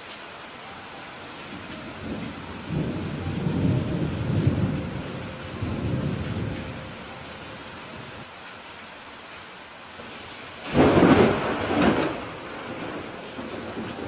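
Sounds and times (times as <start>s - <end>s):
steady rain hissing: 0.0s - 14.0s
thunder rumbling: 1.5s - 8.2s, 10.6s - 14.0s.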